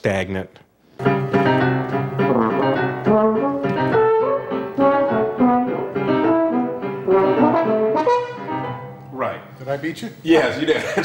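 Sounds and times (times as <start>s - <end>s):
brass instrument melody: 1.0s - 9.5s
piano chords: 1.0s - 9.5s.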